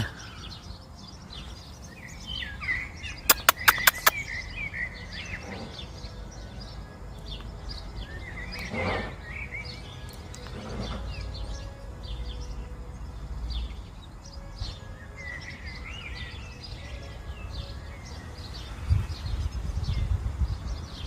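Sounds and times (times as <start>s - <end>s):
birds chirping: 0.0s - 21.0s
sharp clicks: 3.3s - 4.2s.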